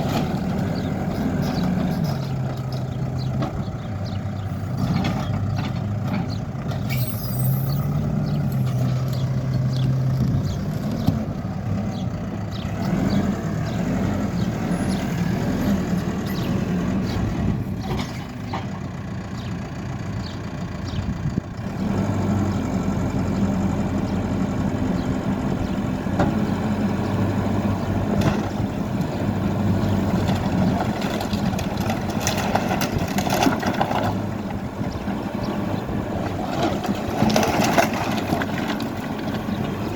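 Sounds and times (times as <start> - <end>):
backhoe diesel engine under load: 0.0 - 39.9
debris knocking and crunching: 30.1 - 34.3, 36.5 - 39.5.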